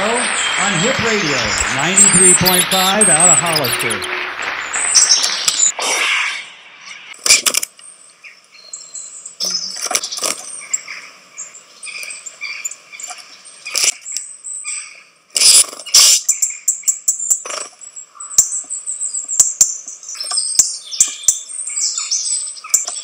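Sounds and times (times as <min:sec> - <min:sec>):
brief sharp noises: 0:00.0 - 0:07.7
small birds chirping: 0:00.0 - 0:23.0.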